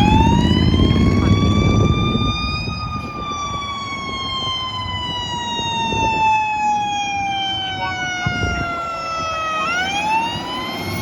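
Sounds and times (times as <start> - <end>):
passing truck rumble: 0.0 - 6.1
fire engine siren wailing: 0.0 - 11.0.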